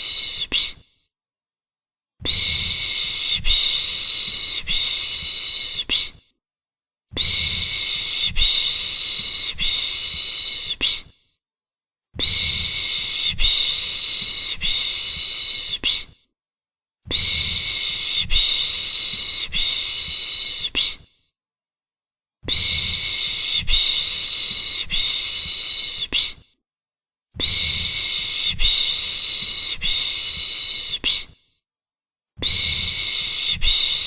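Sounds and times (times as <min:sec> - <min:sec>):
person shushing rhythmically: 0:00.0 - 0:00.9, 0:07.1 - 0:11.2, 0:12.2 - 0:16.2, 0:17.1 - 0:21.1, 0:22.5 - 0:26.4, 0:27.4 - 0:31.4, 0:32.4 - 0:34.0.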